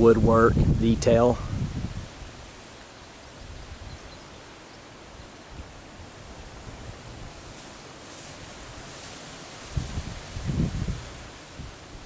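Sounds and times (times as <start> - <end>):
wind gusts buffeting microphone: 0.0 - 2.6, 3.3 - 4.3, 5.4 - 7.8, 8.4 - 12.0
hiss of outdoor ambience: 0.0 - 12.0.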